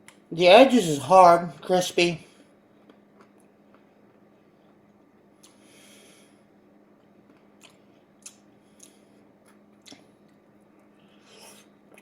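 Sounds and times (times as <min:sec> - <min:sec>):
chewing crispy pizza crust: 0:07.0 - 0:12.0.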